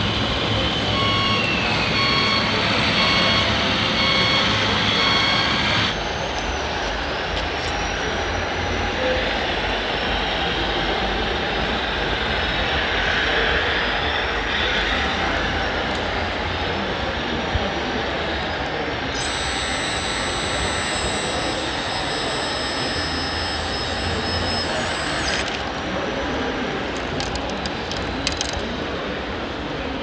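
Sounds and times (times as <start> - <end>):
loud rushing mechanical noise: 0.0 - 6.0, 12.1 - 28.8
sharp clicks: 0.0 - 6.0, 17.9 - 28.8
high-pitched whine: 0.0 - 28.7.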